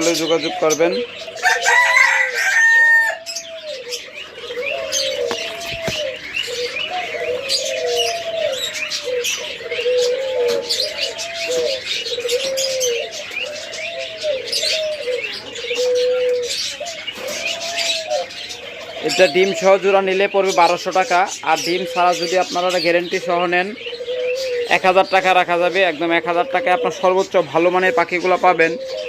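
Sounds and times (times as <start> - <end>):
doves cooing: 0.0 - 29.0
small birds chirping: 0.0 - 29.0.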